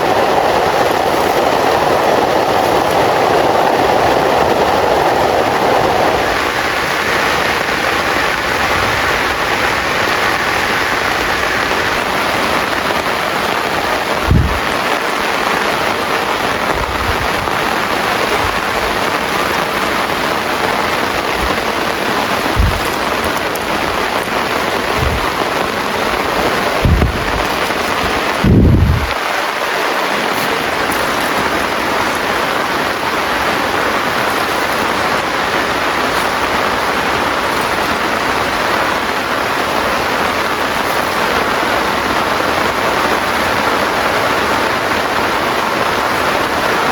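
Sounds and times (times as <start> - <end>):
heavy rain falling: 0.0 - 46.9
short low thuds: 14.2 - 14.9, 22.3 - 24.0, 24.9 - 25.7, 26.6 - 29.2.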